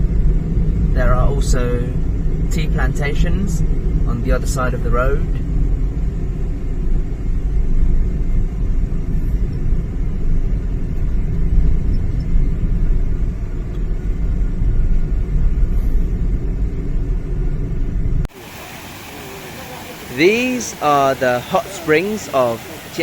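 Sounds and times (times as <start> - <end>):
engine and tyre rumble in vehicle: 0.0 - 18.4.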